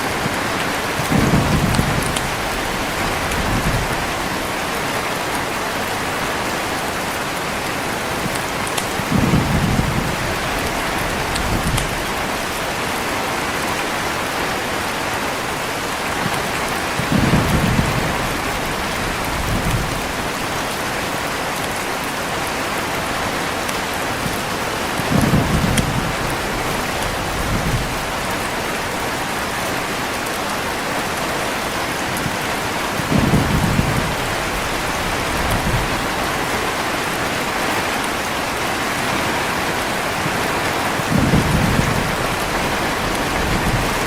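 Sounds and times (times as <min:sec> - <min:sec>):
heavy rain falling: 0:00.0 - 0:44.0
distant thunder rolling: 0:00.1 - 0:05.2, 0:08.2 - 0:12.6, 0:16.9 - 0:20.4, 0:25.1 - 0:28.5, 0:32.2 - 0:36.6, 0:40.2 - 0:44.0.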